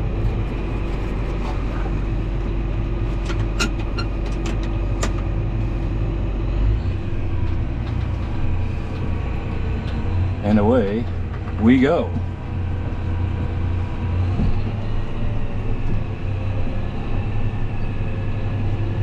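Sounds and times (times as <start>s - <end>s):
air-conditioning fan: 0.0s - 19.0s
tractor engine running: 0.0s - 19.0s.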